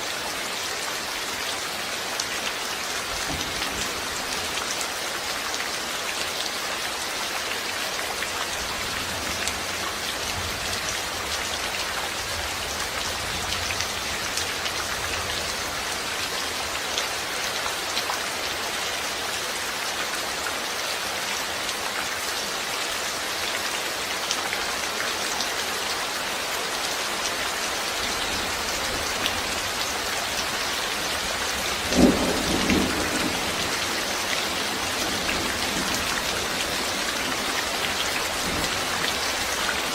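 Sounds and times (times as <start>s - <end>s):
steady rain falling: 0.0s - 39.9s
thunder clap and rumble: 31.8s - 33.8s.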